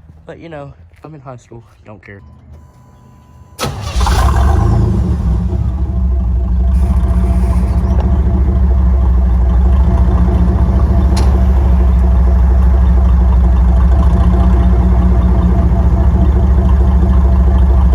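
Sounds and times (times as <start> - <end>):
truck engine idling loudly: 3.6 - 17.9.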